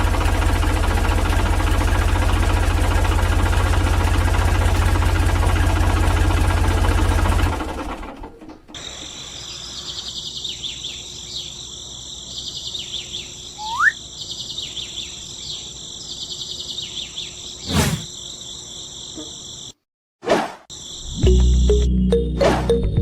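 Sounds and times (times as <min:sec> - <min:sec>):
bird chirps: 0:08.8 - 0:19.7
insects chirring: 0:08.8 - 0:19.8, 0:20.7 - 0:21.8
short rising whistle: 0:13.6 - 0:14.0.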